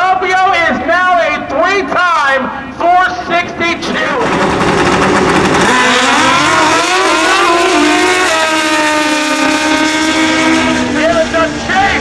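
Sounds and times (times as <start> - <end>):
motorcycles at full throttle: 3.8 - 12.0.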